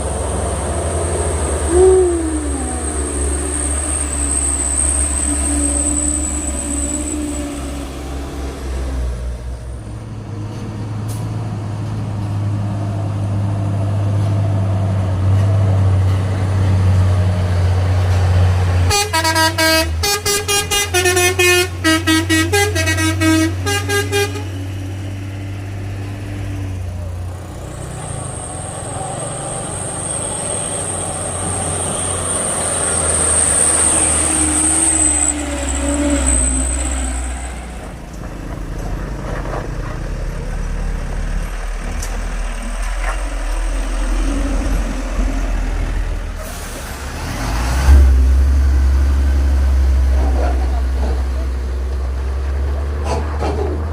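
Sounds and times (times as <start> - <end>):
diesel truck engine under load: 0.0 - 53.9
musical air horn: 18.9 - 24.5.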